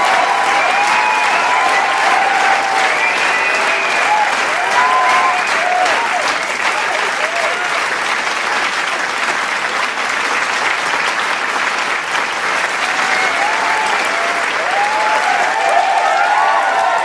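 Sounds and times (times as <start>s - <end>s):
crowd cheering and whooping: 0.0s - 7.8s, 12.8s - 17.0s
crowd clapping: 0.0s - 17.0s.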